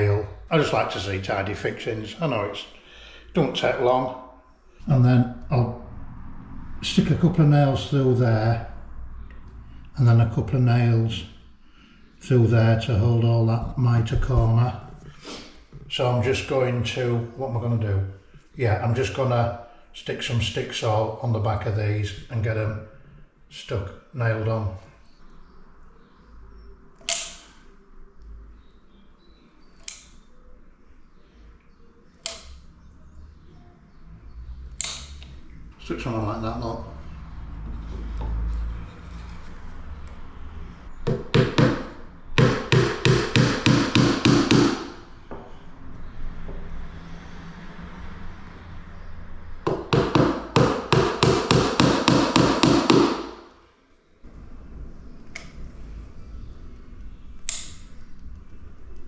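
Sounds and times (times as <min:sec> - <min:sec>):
hammer tapping a nail: 0:41.0 - 0:45.0, 0:49.7 - 0:53.4.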